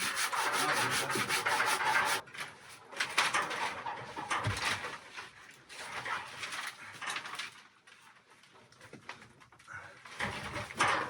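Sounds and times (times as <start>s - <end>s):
hand saw cutting wood: 0.0s - 2.2s.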